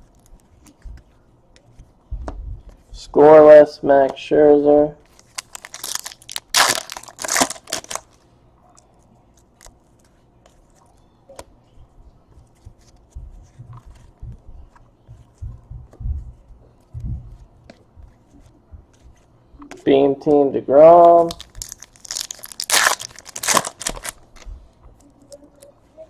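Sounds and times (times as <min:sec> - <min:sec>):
trading cards being flipped: 0:21.2 - 0:24.4.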